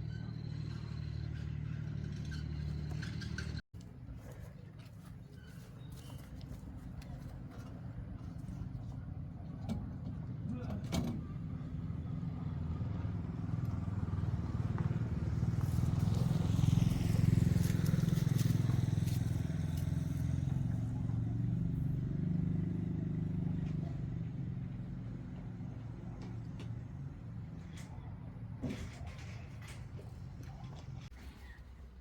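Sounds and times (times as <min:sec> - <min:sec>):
vehicle engine passing by: 0:11.2 - 0:28.2.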